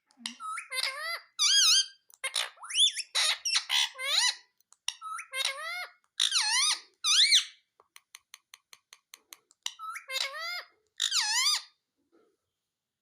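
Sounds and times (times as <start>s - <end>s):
parrot squawking and whistling: 0.4s - 7.6s, 9.7s - 11.8s.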